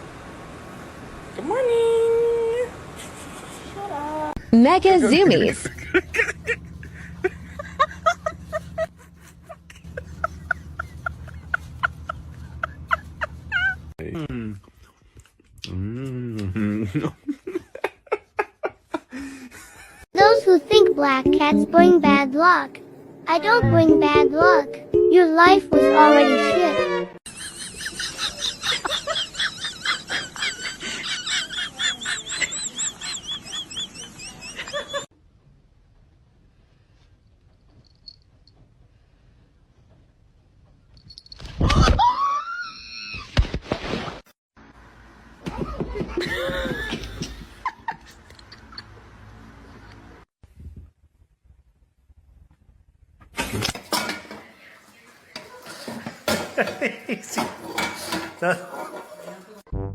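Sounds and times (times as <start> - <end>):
steady low hum: 4.4 - 14.7.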